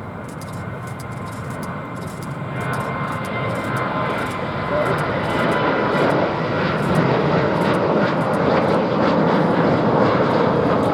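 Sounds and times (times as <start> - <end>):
loud jet engine noise: 0.0 - 10.9.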